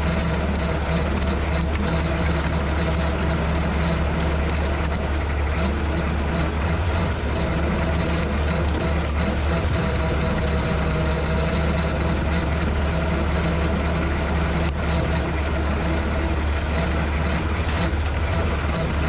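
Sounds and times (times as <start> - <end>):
tractor engine droning: 0.0 - 19.0.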